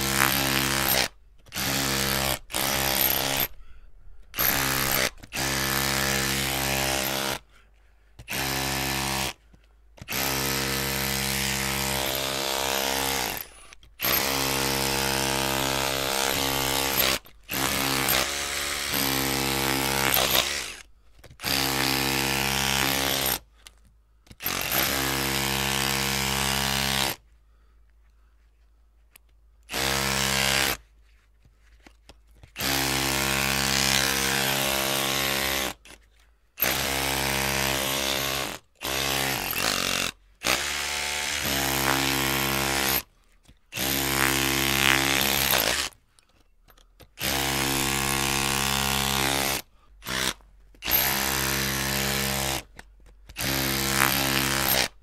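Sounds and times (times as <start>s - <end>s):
electric drill whining: 0.0s - 3.6s, 4.4s - 7.4s, 10.1s - 23.4s, 47.2s - 52.6s.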